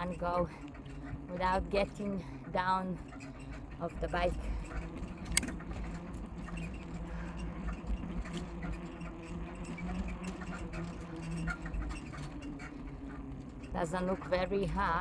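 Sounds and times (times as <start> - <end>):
bicycle drivetrain squeaking: 0.0 - 15.0
bicycle riding rumble: 0.0 - 15.0
sharp click: 5.3 - 5.6.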